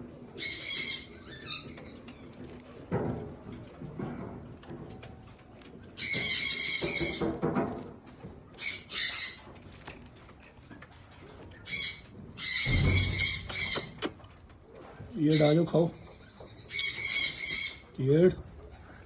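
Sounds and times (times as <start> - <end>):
raspy high-pitched bird calls: 11.6 - 14.1, 15.2 - 17.9
low rumble or thud: 12.6 - 13.8.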